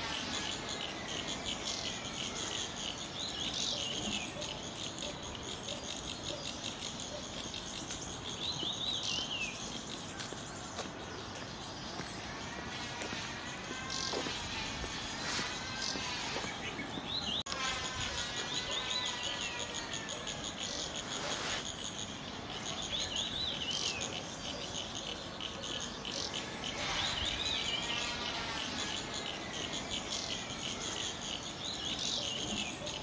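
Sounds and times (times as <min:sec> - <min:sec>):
insect trill: 0:00.0 - 0:33.0
bird calling wavy high notes: 0:12.3 - 0:21.6.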